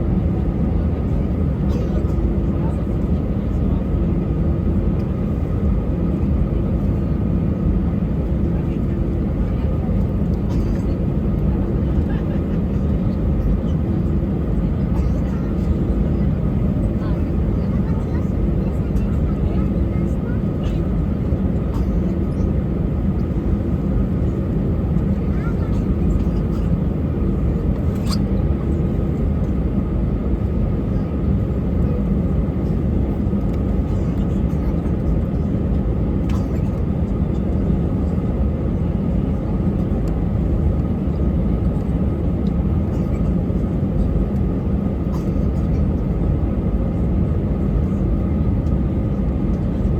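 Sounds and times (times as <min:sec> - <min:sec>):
airplane cabin engine rumble: 0:00.0 - 0:49.9.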